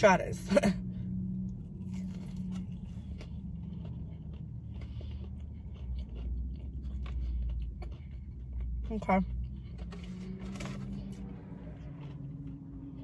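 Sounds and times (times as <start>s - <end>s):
low steady hum: 0.0s - 13.0s
chewing crispy fried food: 1.0s - 13.0s.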